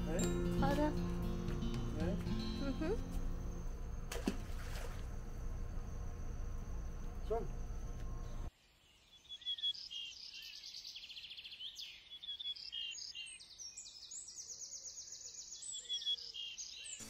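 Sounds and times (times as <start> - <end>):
birds singing: 7.0 - 17.0.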